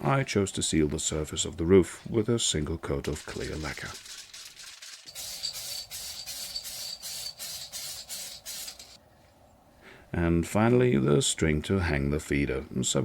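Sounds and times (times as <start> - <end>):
hissing brush strokes: 5.1 - 9.0.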